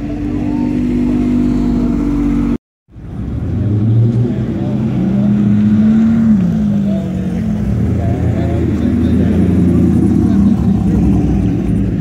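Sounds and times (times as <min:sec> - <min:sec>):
sports car engines running: 0:00.0 - 0:12.0.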